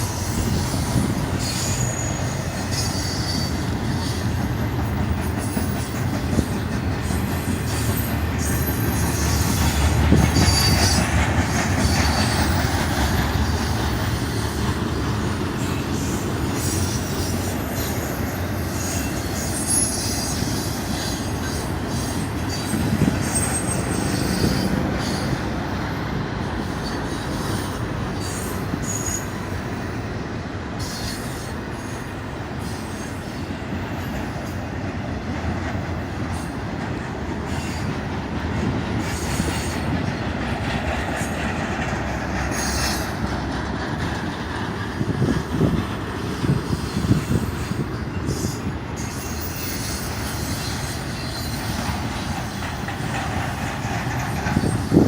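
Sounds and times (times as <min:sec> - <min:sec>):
high wheel squeals: 0:00.0 - 0:30.2, 0:30.8 - 0:34.7, 0:37.4 - 0:38.2, 0:38.9 - 0:44.1, 0:45.2 - 0:55.0
train wheels rumbling on rail: 0:00.0 - 0:55.0.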